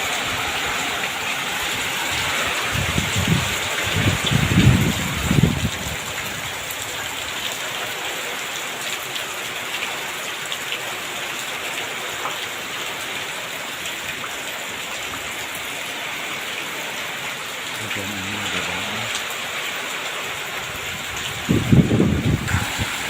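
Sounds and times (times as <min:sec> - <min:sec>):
rain hissing: 0:22.0 - 0:23.0.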